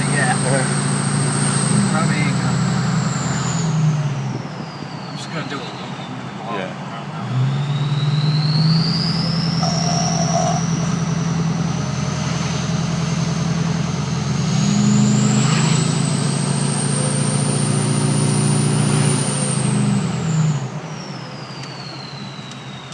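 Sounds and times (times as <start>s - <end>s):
low diesel engine drone: 0.0s - 22.9s
turbo whistle: 7.9s - 11.6s.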